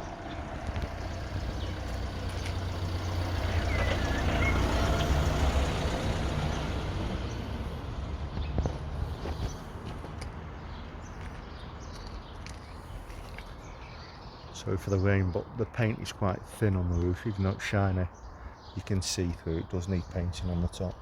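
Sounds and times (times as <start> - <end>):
passing vehicle rumble: 0.0 - 13.8.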